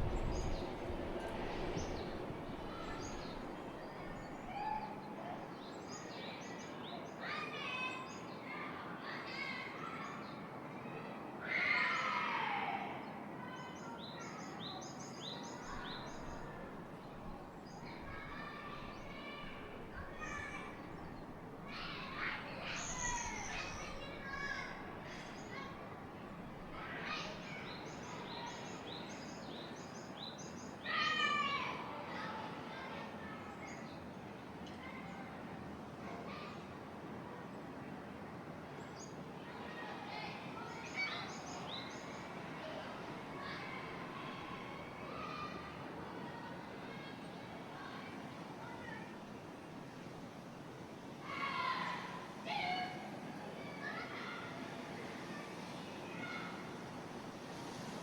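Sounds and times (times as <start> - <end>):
wind rushing: 0.0 - 4.5
small birds chirping: 0.0 - 7.0, 13.6 - 31.0
wind: 0.0 - 58.0.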